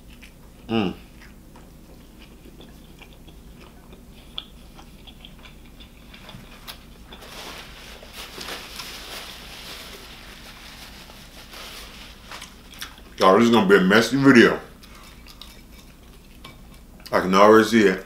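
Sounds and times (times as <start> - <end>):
close chewing with wet mouth clicks: 0.0 - 6.8, 12.6 - 13.2, 14.8 - 17.1
paper napkin rustling: 6.4 - 12.7.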